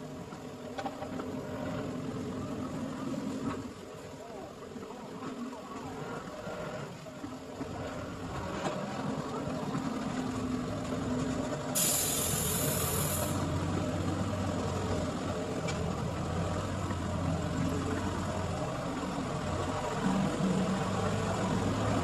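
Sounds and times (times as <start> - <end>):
short burst of hiss: 11.8 - 13.4.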